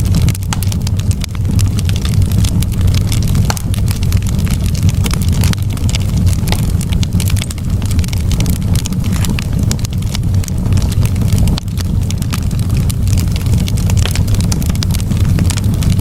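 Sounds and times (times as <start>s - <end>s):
campfire wood crackling and popping: 0.0s - 16.0s
low fire rumble: 0.0s - 16.0s.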